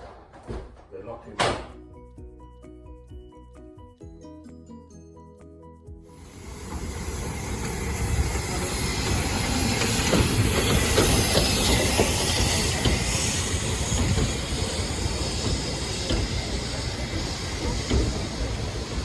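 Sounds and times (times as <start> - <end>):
train running on rails: 6.1 - 19.0
wheels clicking over track: 6.3 - 19.0.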